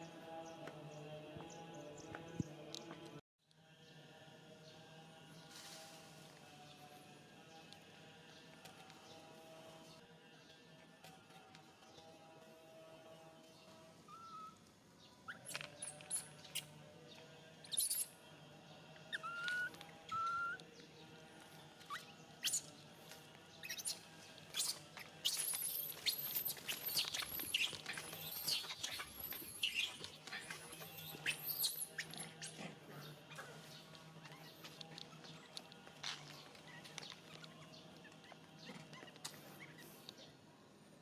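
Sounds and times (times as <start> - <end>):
monkeys squeaking and squealing: 14.1 - 14.6, 15.3 - 16.7, 17.7 - 18.1, 19.1 - 20.6, 21.9 - 22.7, 23.6 - 40.1.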